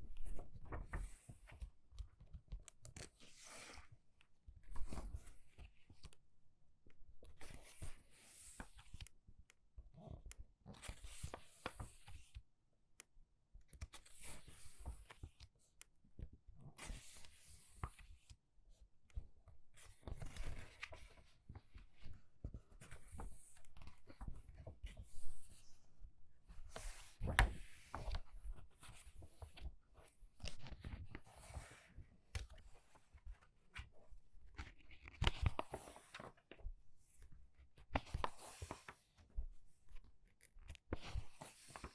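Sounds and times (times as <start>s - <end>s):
small clicks and taps: 1.9s - 3.1s
book pages turning: 19.8s - 25.7s, 26.6s - 37.2s, 37.8s - 39.0s, 40.5s - 41.9s.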